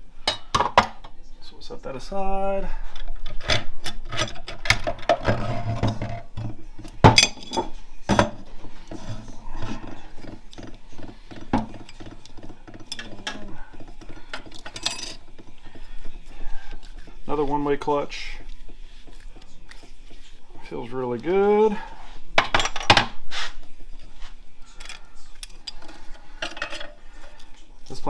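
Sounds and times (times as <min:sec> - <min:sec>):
metal parts clinking and knocking: 0:10.2 - 0:15.4.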